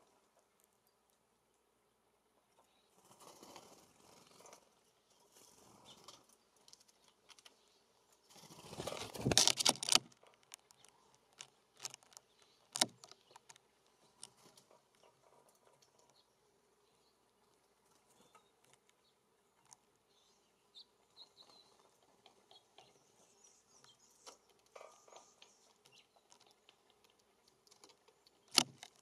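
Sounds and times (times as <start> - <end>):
bird wings flapping: 3.0 - 4.6, 8.3 - 9.8.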